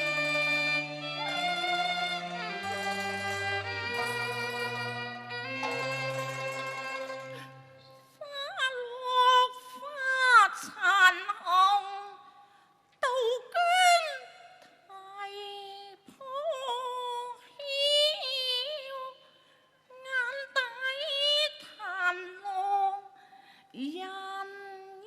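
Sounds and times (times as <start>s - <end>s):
opera singing with vibrato: 0.0s - 5.8s, 8.1s - 12.2s, 13.0s - 19.2s.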